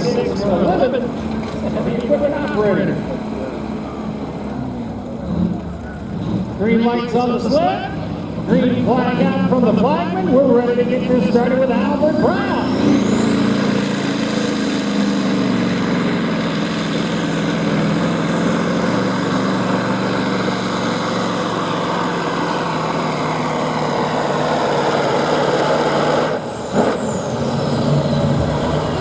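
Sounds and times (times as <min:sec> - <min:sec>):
diesel truck engine at full throttle: 0:00.0 - 0:29.0.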